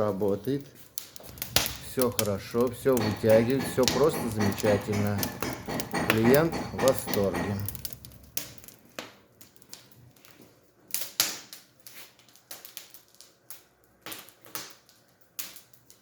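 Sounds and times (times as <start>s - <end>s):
wood fire crackling: 0.2s - 4.4s, 5.2s - 15.8s.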